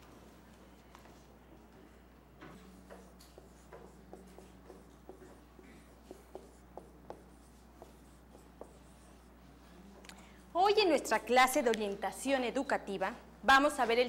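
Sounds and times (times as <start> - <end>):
low steady hum: 0.0 - 14.0
marker writing on whiteboard: 1.0 - 10.0.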